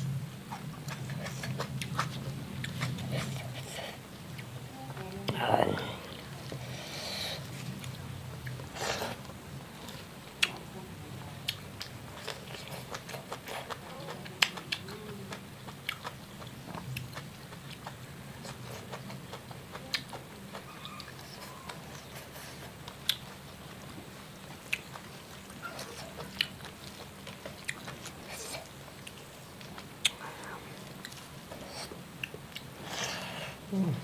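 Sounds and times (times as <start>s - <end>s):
steady low hum: 0.0s - 34.0s
person biting and chewing food: 0.5s - 4.5s.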